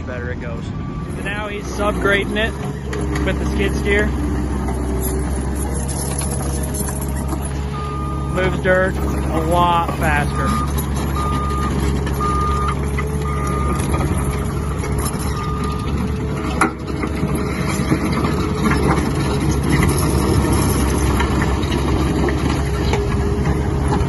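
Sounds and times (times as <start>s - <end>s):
diesel engine running: 0.0s - 24.0s
backup alarm beeping: 0.6s - 2.0s, 7.7s - 16.0s.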